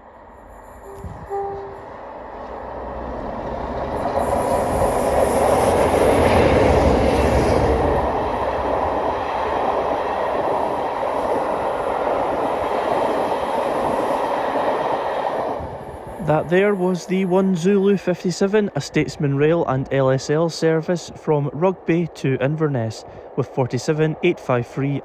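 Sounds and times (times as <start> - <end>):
passenger train passing: 0.0 - 25.0
wheels clickety-clack on rail: 0.9 - 17.9.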